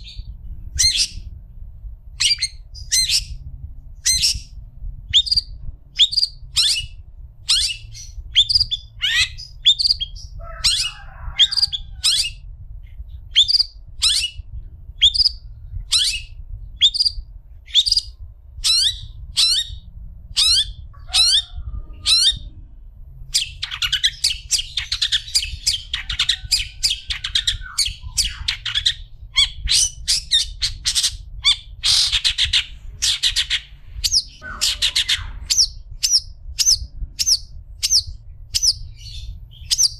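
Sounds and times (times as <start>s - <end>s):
shrike calling: 23.4s - 38.8s.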